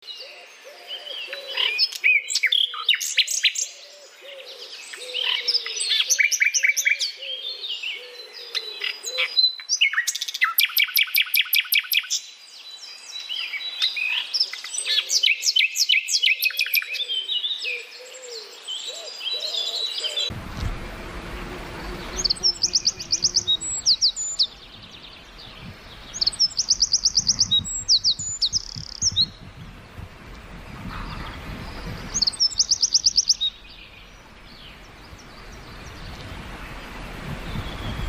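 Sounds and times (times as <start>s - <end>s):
birds chirping and trilling: 0.0s - 20.4s, 21.0s - 38.0s
low repeating bird call: 18.2s - 38.0s.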